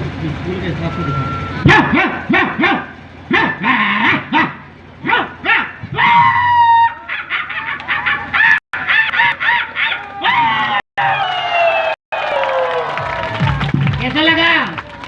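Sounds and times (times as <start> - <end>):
man imitating dog barks: 1.6 - 10.3.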